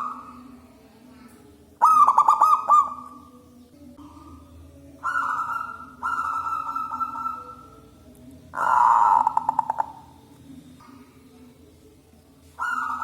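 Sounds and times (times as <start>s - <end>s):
dove cooing: 1.8s - 3.3s, 5.0s - 7.9s, 8.5s - 10.2s, 12.6s - 13.0s.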